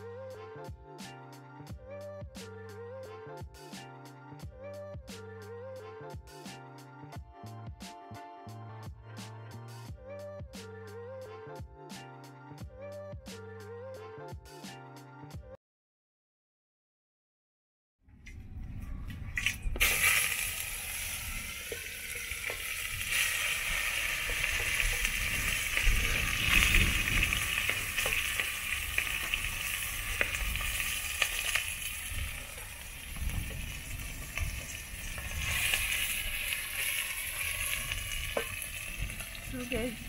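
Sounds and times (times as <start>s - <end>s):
liver sizzling in a pot: 19.8s - 40.0s.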